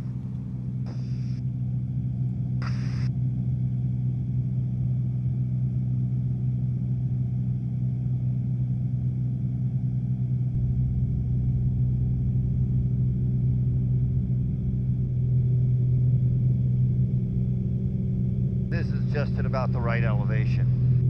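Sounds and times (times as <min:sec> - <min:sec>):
light aircraft engine drone: 0:00.0 - 0:21.0.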